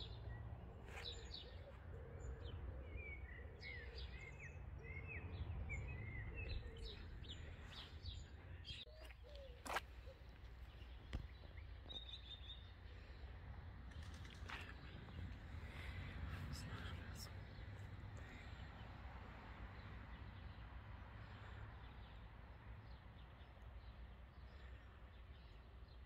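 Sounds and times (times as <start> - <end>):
small birds chirping: 0.0 - 13.3
low outdoor rumble: 9.5 - 25.6.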